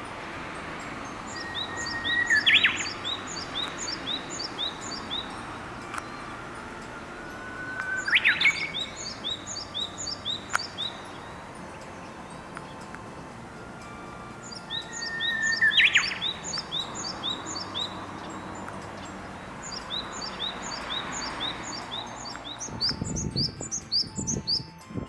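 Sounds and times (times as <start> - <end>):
steady outdoor hiss: 0.0 - 25.0
warbler singing: 0.0 - 25.0
small bird short high chirps: 19.6 - 24.7.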